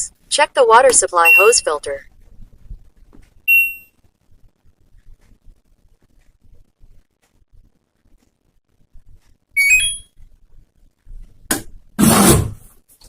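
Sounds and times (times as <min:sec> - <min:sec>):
short electronic beeps: 0:01.2 - 0:01.8, 0:03.5 - 0:04.0, 0:09.6 - 0:10.1.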